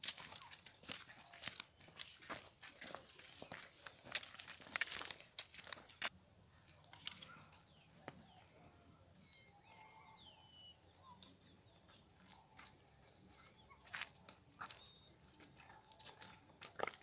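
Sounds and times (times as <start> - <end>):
clicks and rustles: 3.2 - 6.1.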